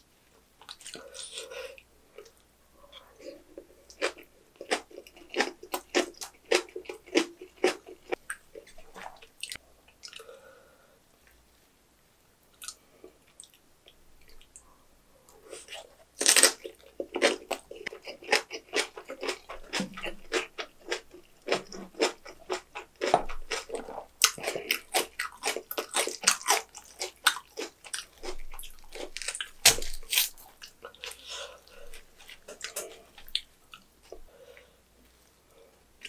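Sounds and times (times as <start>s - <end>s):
crunching and chewing kimchi: 3.4s - 10.3s, 15.5s - 34.2s.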